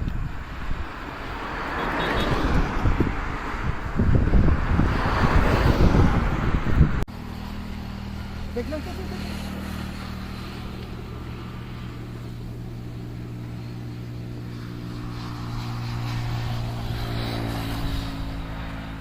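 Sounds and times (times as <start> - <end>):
motorboat engine humming: 7.1 - 19.0.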